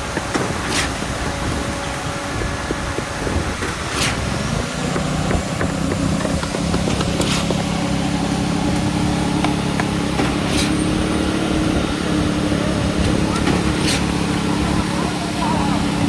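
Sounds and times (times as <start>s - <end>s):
concrete pump engine hum: 0.0s - 16.0s
sharp hissing stroke: 0.6s - 1.3s, 3.8s - 4.6s, 7.2s - 9.3s, 10.2s - 11.3s.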